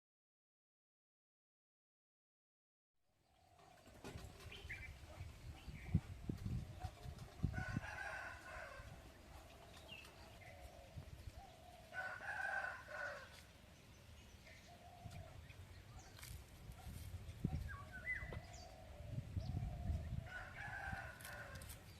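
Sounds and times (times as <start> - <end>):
rooster crowing: 7.5 - 9.0, 11.9 - 13.4, 20.3 - 21.7
bird chirps: 17.5 - 19.8.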